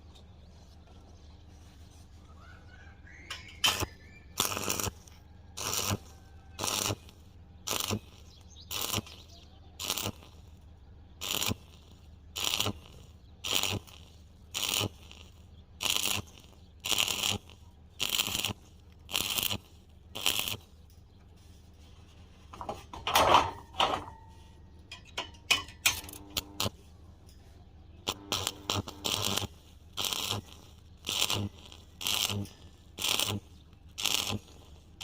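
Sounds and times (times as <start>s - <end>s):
hand tool scraping metal: 3.2s - 5.0s, 20.2s - 33.4s
metal clank with ringing: 22.6s - 26.2s.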